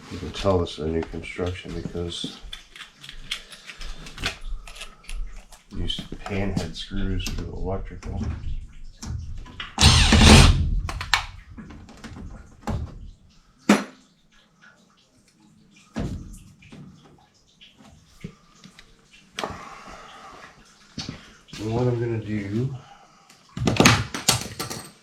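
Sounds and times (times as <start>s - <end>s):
tool clicks: 9.8s - 11.3s.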